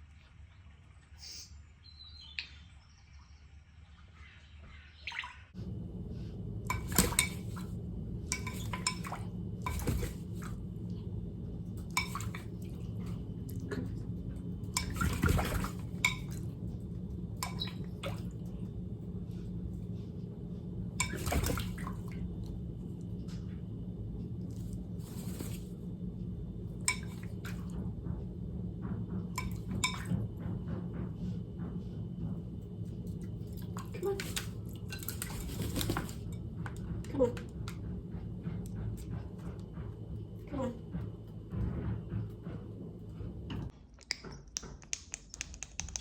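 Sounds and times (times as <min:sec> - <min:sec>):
tap water running: 0:06.6 - 0:19.8, 0:20.8 - 0:23.6, 0:26.7 - 0:28.0, 0:29.2 - 0:30.5, 0:33.0 - 0:37.8
dishes and cutlery clinking: 0:06.7 - 0:07.7, 0:08.3 - 0:10.5, 0:11.8 - 0:12.9, 0:14.6 - 0:16.7, 0:21.0 - 0:21.8, 0:26.8 - 0:27.7, 0:29.3 - 0:30.2.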